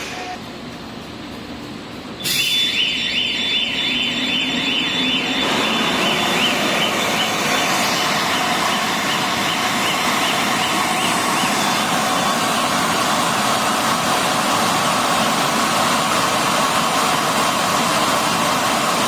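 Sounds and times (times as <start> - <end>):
filling line machinery running: 0.0 - 19.0
electronic warning siren warbling: 2.2 - 12.8.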